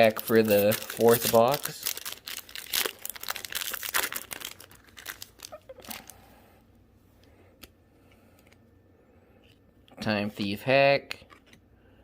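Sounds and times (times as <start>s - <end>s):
foil pack tearing and crinkling: 0.0s - 6.2s.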